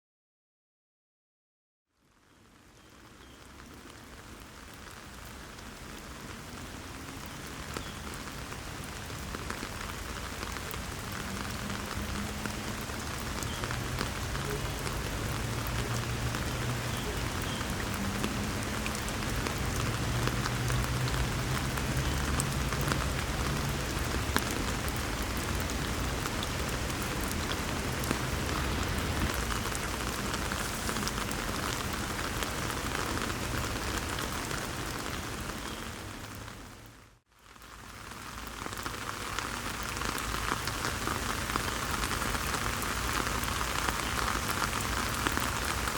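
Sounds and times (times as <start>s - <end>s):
crackling water splashes: 2.2s - 45.9s
waterfall rushing: 10.2s - 33.9s.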